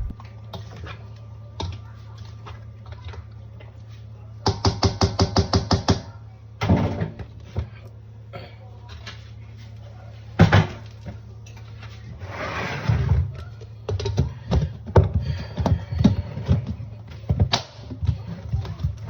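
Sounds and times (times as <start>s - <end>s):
steady low hum: 0.0s - 0.4s.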